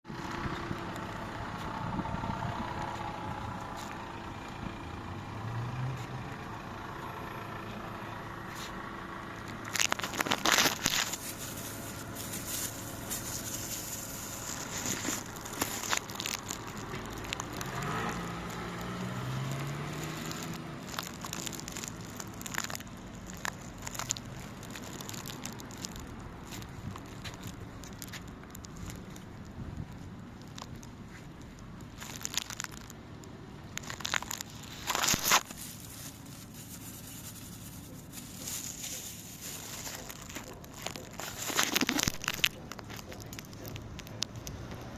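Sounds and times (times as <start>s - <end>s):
bus engine running: 0.1s - 44.9s
crackling and clicking: 9.4s - 44.9s.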